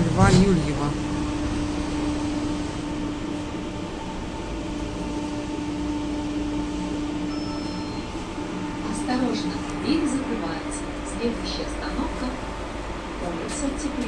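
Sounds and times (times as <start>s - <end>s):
low rumble: 0.0s - 5.5s
electrical hum: 0.0s - 13.1s.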